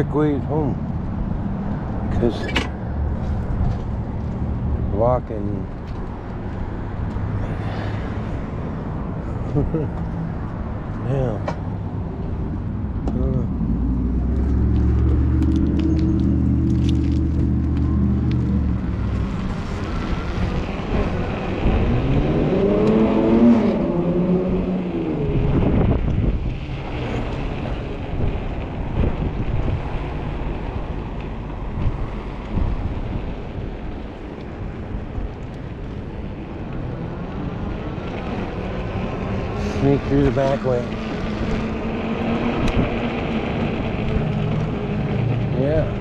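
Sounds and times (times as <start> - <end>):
wind noise on microphone: 0.8 - 46.0
car engine revving: 12.9 - 29.0, 35.7 - 46.0.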